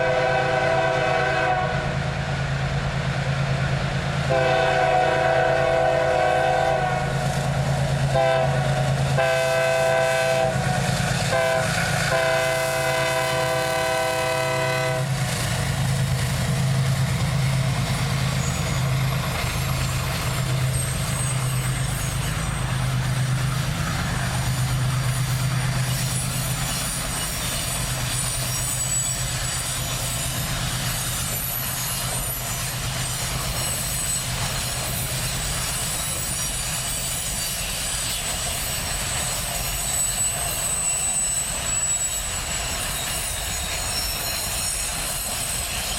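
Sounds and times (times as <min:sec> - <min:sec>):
locomotive air horn blasts: 0:00.0 - 0:02.0, 0:04.3 - 0:07.2, 0:08.1 - 0:15.2
locomotive engine rumble: 0:00.0 - 0:39.6
high-pitched wheel squeal: 0:16.7 - 0:45.9.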